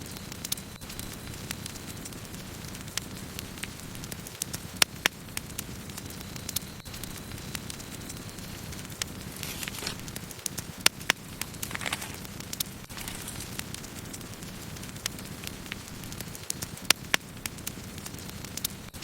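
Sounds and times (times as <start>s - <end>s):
wood crackling and popping: 0.0s - 19.0s
low rush of flames: 0.2s - 19.0s
wood hissing: 9.3s - 10.2s, 11.4s - 13.8s.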